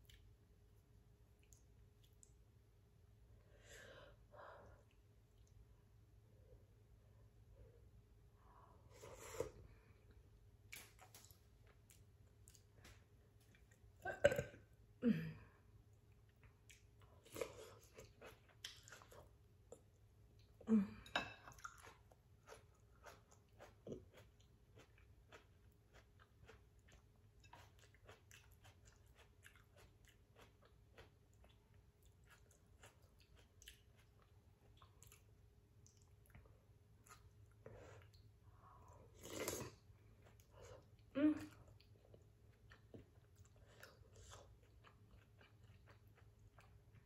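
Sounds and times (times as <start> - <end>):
soft chewing clicks: 0.0 - 2.6, 15.9 - 20.6, 21.5 - 38.4, 39.2 - 47.0.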